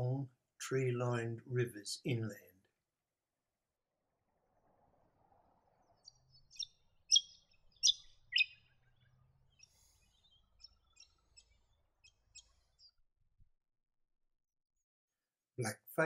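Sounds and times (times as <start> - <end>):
woodswallow harsh calls: 5.9 - 12.9
bird chips: 6.4 - 8.8.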